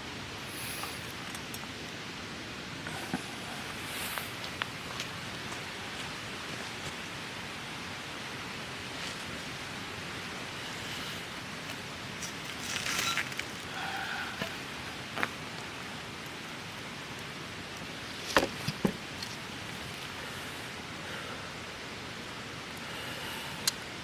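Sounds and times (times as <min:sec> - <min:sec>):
campfire hissing: 0:00.0 - 0:24.0
fire pops and crackles: 0:00.5 - 0:01.8, 0:02.8 - 0:07.1, 0:11.6 - 0:20.5.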